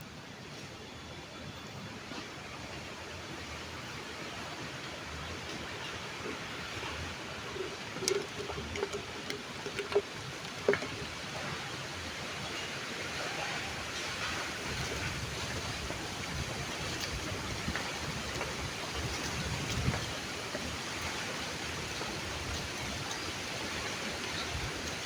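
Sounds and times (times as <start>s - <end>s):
stream water flowing: 4.0s - 25.0s
sharp clicks and knocks: 7.7s - 11.2s.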